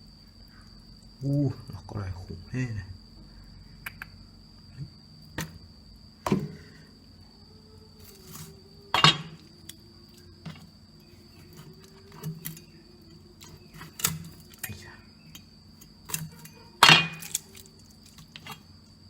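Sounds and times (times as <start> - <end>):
high-pitched whine: 0.0 - 19.0
dishes and utensils clinking: 9.0 - 9.4, 16.8 - 17.4.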